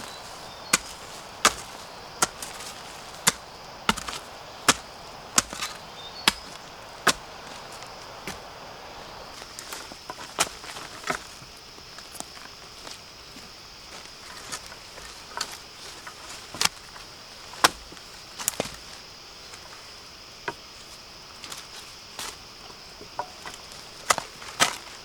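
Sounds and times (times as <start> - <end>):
blade chopping bamboo: 0.0 - 7.6.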